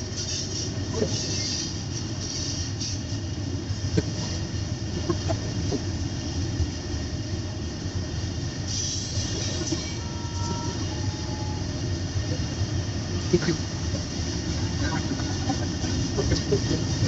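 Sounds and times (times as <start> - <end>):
train cars rumbling on rails: 0.0 - 17.0
brief hiss: 8.7 - 10.0.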